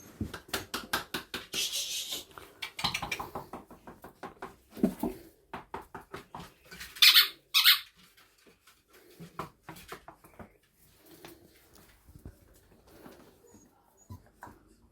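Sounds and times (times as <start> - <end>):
puppies chewing and scuffling: 6.1 - 14.9
puppy squeaks: 7.0 - 7.9.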